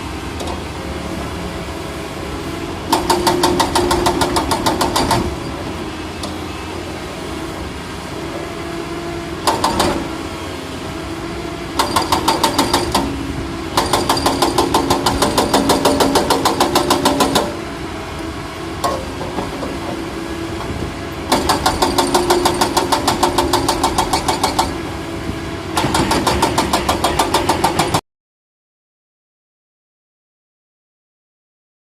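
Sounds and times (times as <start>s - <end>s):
diesel engine running: 0.0s - 27.8s.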